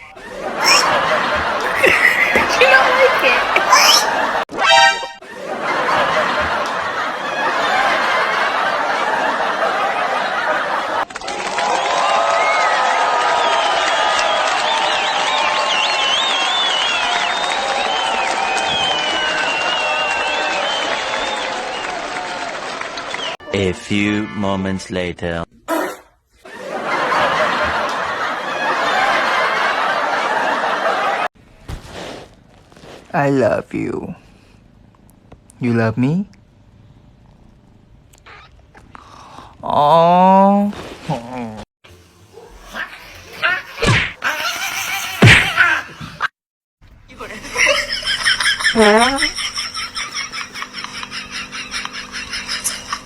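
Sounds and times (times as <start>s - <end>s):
studio audience laughter: 0.0s - 4.5s, 5.2s - 11.0s, 26.4s - 31.3s, 47.2s - 53.0s.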